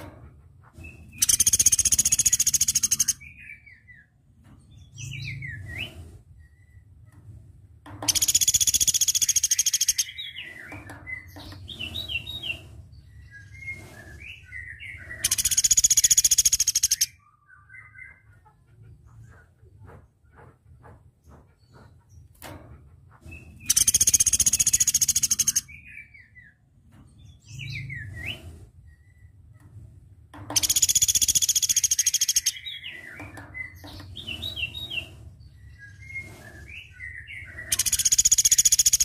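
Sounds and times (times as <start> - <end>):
bird rattling trills: 1.2 - 3.2, 8.1 - 12.5, 15.2 - 17.1, 23.6 - 25.6, 30.6 - 35.0, 37.6 - 39.0
soft bird chirps: 8.1 - 18.4, 30.5 - 39.0.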